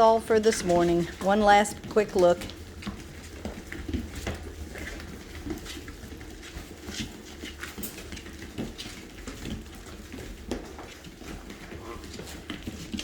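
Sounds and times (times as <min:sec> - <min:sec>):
puppies scuffling and paw patter: 0:00.0 - 0:13.0.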